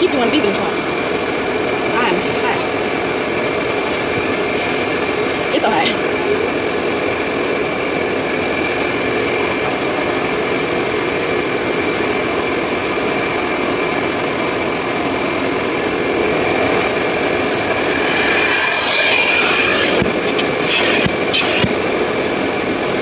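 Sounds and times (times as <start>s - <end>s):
high whine: 0.0s - 11.0s, 15.0s - 23.0s
vacuum motor running: 15.9s - 21.9s.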